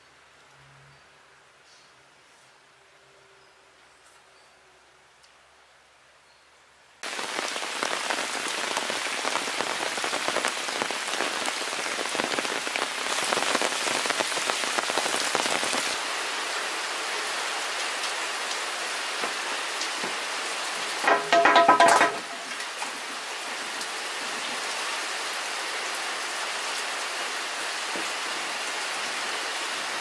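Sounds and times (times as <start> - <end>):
steady rain falling: 7.0 - 30.0.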